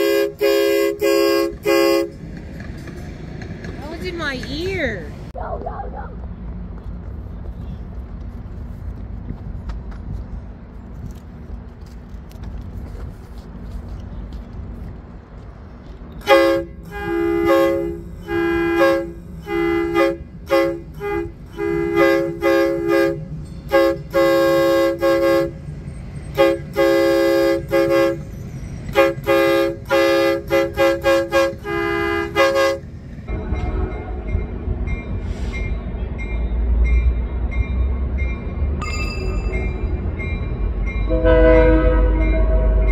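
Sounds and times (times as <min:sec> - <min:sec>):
locomotive horn blasts: 0:00.0 - 0:02.2, 0:16.2 - 0:25.6, 0:26.3 - 0:28.3, 0:28.9 - 0:34.7, 0:41.1 - 0:42.9
low engine rumble: 0:00.0 - 0:42.9.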